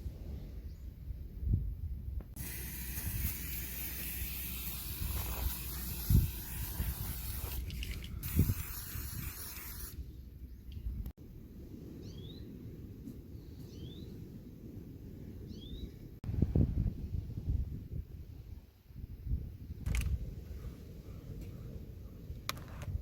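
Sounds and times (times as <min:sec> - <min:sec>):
steady high hiss: 0:02.4 - 0:07.6.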